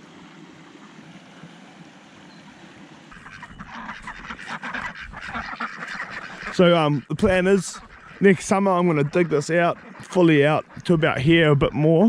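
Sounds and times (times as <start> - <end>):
ducks quacking: 3.1 - 12.0.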